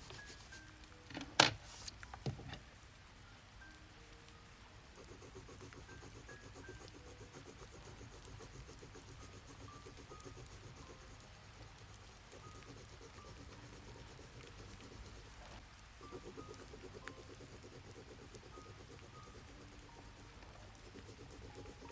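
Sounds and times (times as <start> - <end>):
gentle background music notes: 0.0 - 21.9
soft hiss: 0.0 - 21.9
crickets chirping: 4.8 - 21.9.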